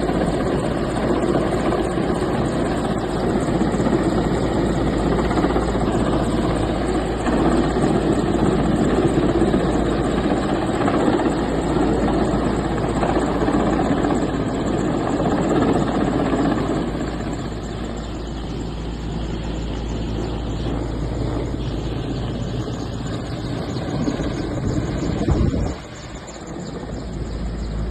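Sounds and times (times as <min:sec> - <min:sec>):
engine noise: 0:15.5 - 0:27.9.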